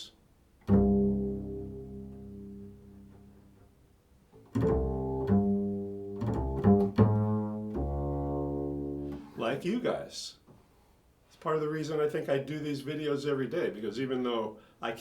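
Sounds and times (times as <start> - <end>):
plucked low string instrument: 0.6 - 9.3.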